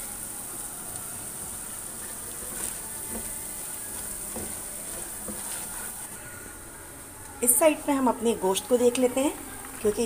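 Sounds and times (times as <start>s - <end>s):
food sizzling in oil: 0.0s - 6.1s.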